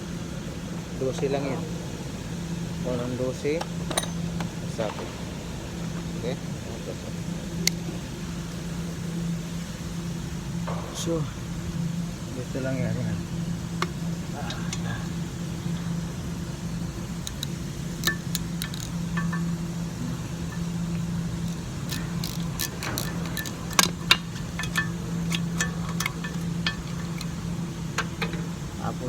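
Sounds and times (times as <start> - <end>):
low hum: 0.0 - 29.0
wrench clicking on bolt: 17.2 - 19.6, 20.4 - 28.6.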